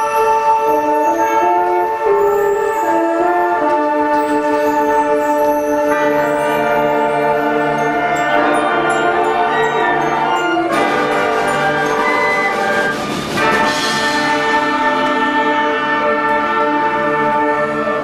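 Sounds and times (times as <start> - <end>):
concert band playing chords: 3.8 - 18.0.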